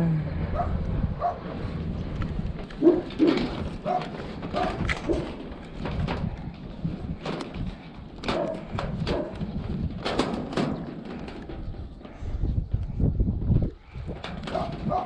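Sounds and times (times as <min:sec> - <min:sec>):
dog barking: 0:00.5 - 0:01.4, 0:02.8 - 0:05.2, 0:14.5 - 0:15.0.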